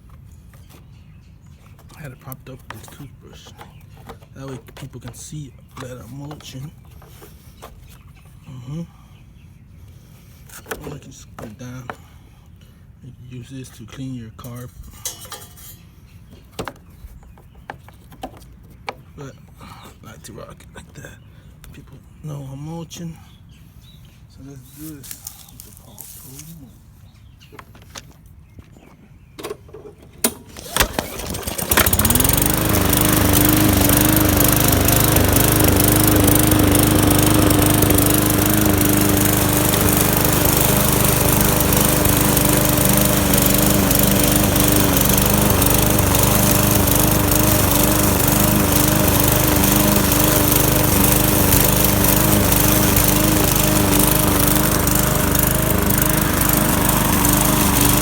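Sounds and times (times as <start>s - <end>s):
engine starting knocks: 29.4s - 32.6s
lawn mower engine running: 29.4s - 58.0s.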